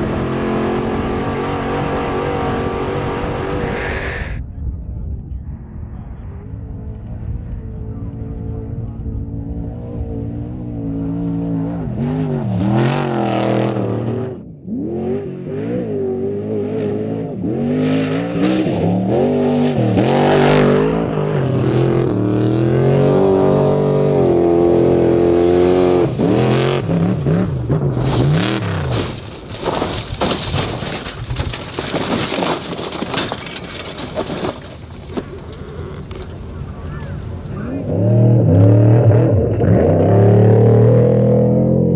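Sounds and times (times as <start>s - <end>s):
truck engine revving: 0.0s - 4.4s, 7.8s - 41.9s
harsh noisy rush: 0.8s - 8.8s.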